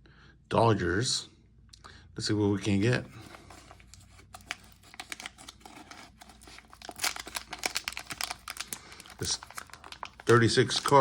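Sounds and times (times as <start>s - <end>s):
foil wrapper tearing and crinkling: 3.3s - 11.0s.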